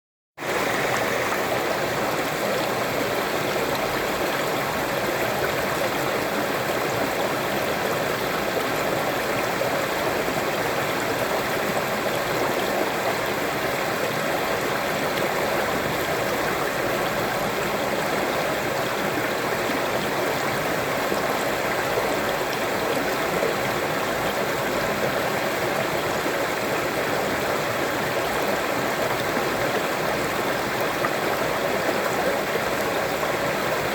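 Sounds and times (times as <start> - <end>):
waterfall rushing: 0.4 - 3.1.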